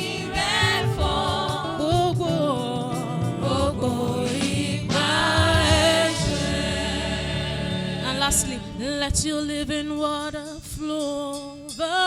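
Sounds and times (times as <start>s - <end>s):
band accompaniment: 0.0s - 9.8s
person singing praise song: 0.0s - 10.0s.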